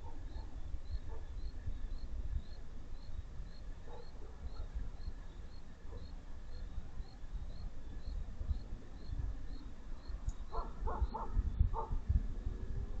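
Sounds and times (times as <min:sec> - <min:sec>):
distant dog barking: 0:00.0 - 0:01.3, 0:03.8 - 0:04.8, 0:05.8 - 0:06.2, 0:10.5 - 0:12.0
low rumble on microphone: 0:00.0 - 0:13.0
faint high chirp: 0:00.2 - 0:11.3.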